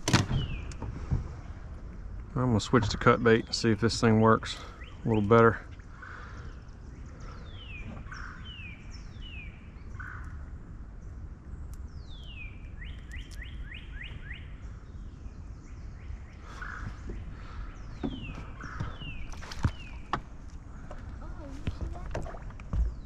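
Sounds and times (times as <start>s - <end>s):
steady low rumble: 0.0s - 23.0s
birds whistling: 0.3s - 0.8s, 4.4s - 10.4s, 11.8s - 20.9s.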